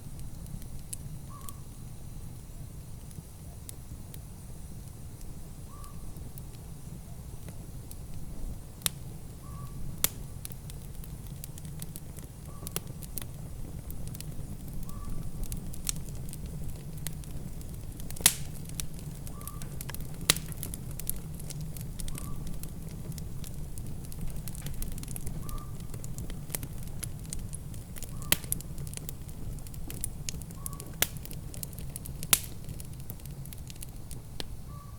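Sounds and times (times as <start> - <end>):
wood fire crackling: 0.0 - 34.9
sharp pops and snaps: 8.8 - 34.5.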